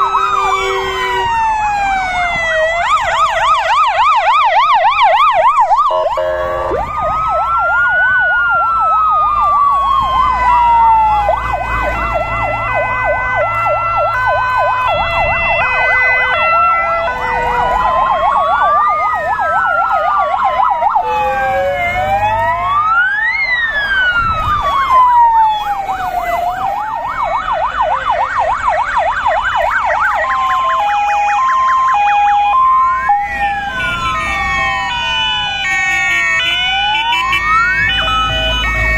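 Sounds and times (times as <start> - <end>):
fire engine sirens: 0.0 - 38.9.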